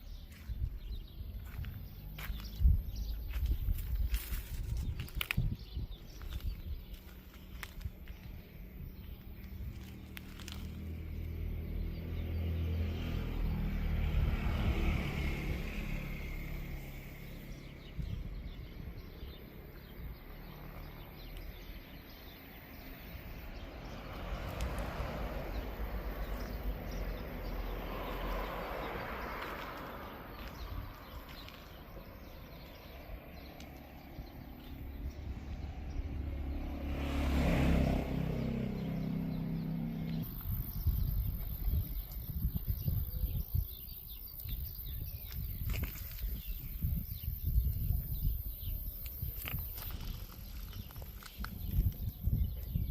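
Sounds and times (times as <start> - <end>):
vehicles passing: 0.0 - 52.9.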